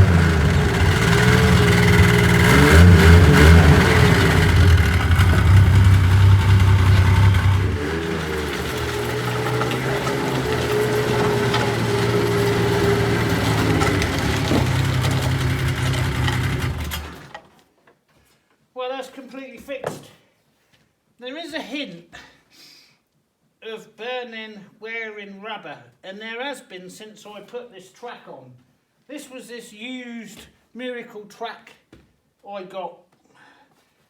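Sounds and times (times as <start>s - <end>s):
snowmobile engine running: 0.0s - 17.3s.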